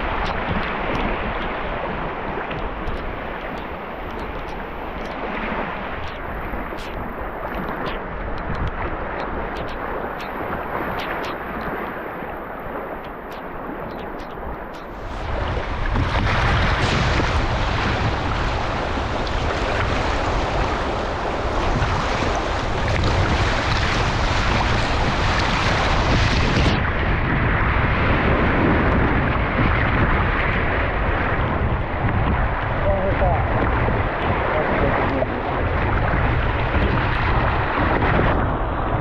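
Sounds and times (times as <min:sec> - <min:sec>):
river water flowing: 0:00.0 - 0:39.0
wind buffeting microphone: 0:00.0 - 0:39.0
rain: 0:14.9 - 0:39.0.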